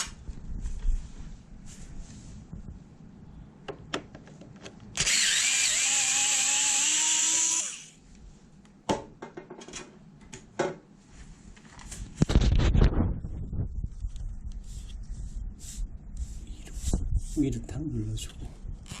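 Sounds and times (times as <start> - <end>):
cordless screwdriver whirring: 5.0 - 8.0.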